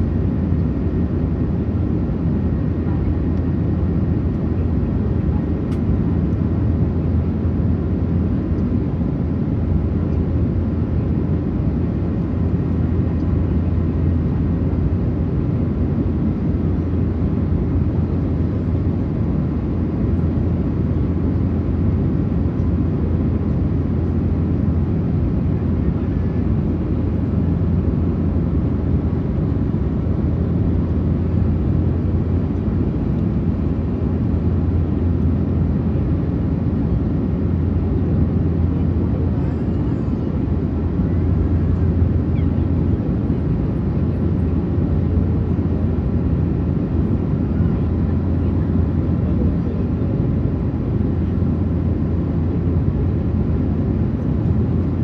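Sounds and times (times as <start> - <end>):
airplane cabin rumble: 0.0 - 55.0.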